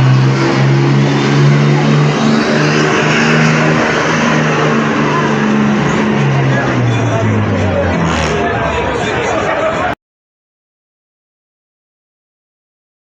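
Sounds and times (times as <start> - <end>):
exhaust rush: 0.0 - 10.0
truck engine under load: 0.0 - 10.0.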